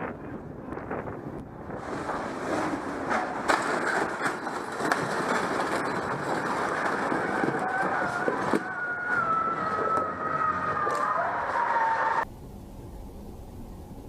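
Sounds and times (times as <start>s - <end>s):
siren: 7.2s - 12.3s.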